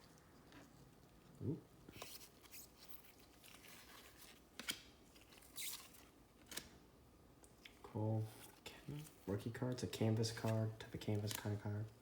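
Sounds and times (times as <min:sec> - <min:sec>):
trading cards rustling and scraping: 0:01.9 - 0:06.6, 0:08.3 - 0:11.8.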